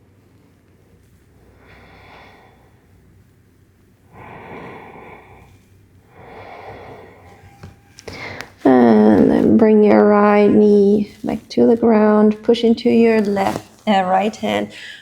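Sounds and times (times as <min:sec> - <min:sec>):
woman breathing deeply: 0:01.3 - 0:03.2, 0:04.1 - 0:08.6, 0:14.7 - 0:15.0.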